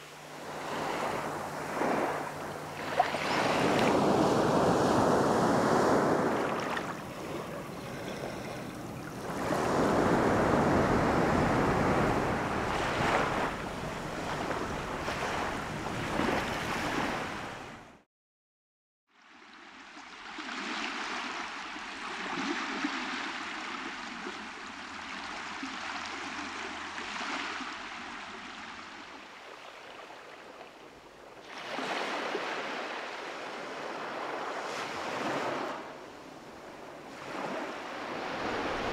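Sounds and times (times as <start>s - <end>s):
faint steady hum: 0.0s - 17.8s
ocean waves on beach: 0.0s - 18.0s, 19.2s - 38.9s.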